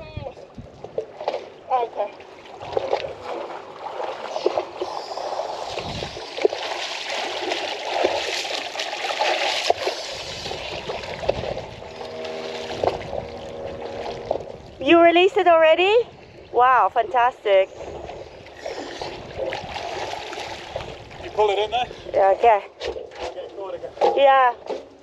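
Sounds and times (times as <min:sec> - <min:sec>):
water splashing and gurgling: 0:00.0 - 0:22.3
faint hum: 0:10.1 - 0:21.9.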